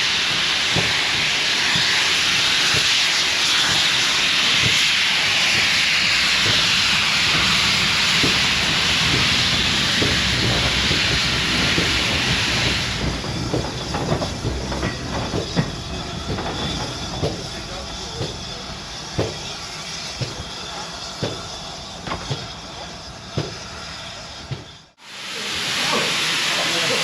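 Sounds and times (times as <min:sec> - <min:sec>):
steam locomotive hissing: 0:00.0 - 0:27.0
short knocks and clanks: 0:10.0 - 0:19.5.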